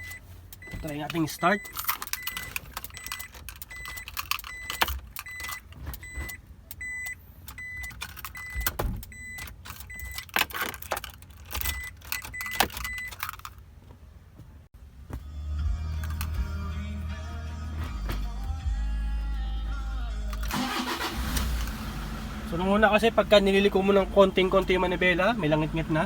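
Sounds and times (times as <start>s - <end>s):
car warning chime beeping: 0.0s - 10.3s, 11.6s - 13.2s, 19.6s - 26.0s.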